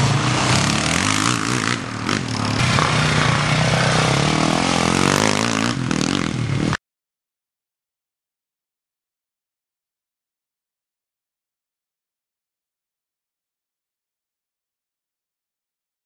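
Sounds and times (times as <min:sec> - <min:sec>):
quad engines revving: 0:00.0 - 0:06.8.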